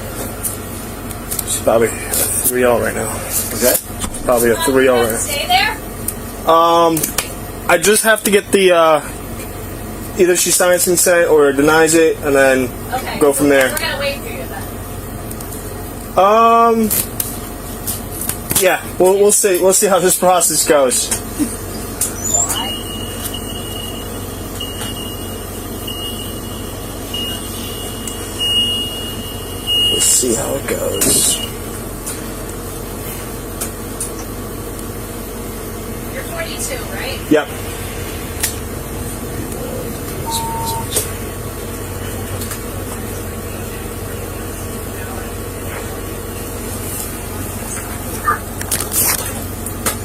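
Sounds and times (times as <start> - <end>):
vehicle idling: 0.0 - 50.0
faint high-pitched tone: 40.2 - 41.0.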